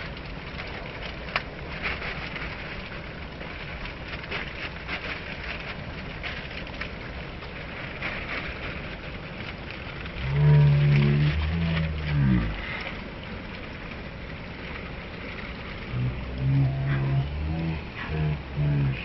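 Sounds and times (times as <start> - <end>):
river water rushing: 10.2 - 19.0.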